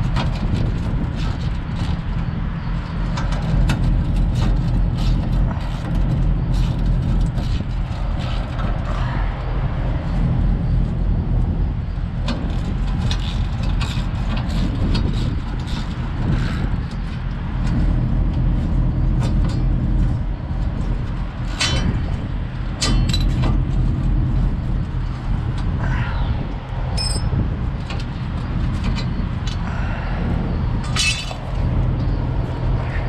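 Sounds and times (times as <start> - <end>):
metallic clinks of tools: 27.0 - 27.3.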